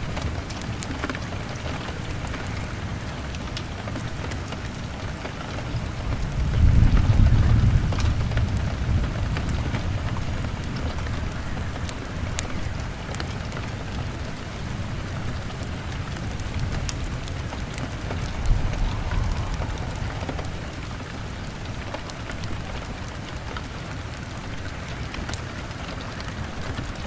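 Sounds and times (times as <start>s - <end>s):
heavy rain on a window: 0.0s - 27.0s
log fire crackling: 16.4s - 25.6s
low rumble: 17.2s - 22.3s.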